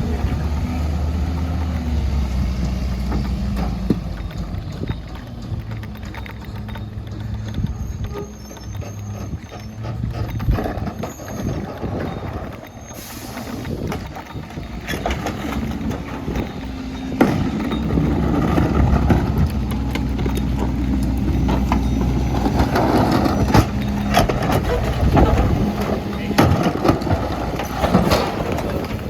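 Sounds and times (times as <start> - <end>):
garbage truck diesel engine: 0.0 - 29.0
knocks and clanks: 0.0 - 29.0.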